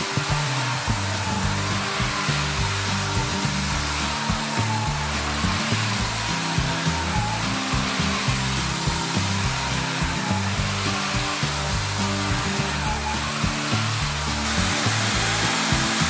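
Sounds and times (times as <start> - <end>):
background music with bass line: 0.0 - 16.0
floor washer motor and suction hiss: 0.0 - 16.0.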